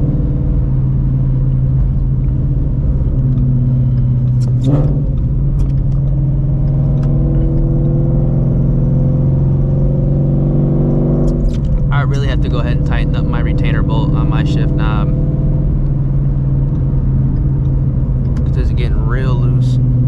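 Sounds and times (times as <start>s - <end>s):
car engine running while driving: 0.0s - 20.0s.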